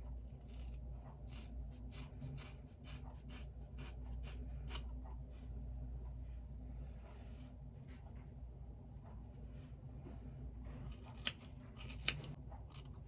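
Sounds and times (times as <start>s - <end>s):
scissors snipping hair: 11.0s - 13.0s.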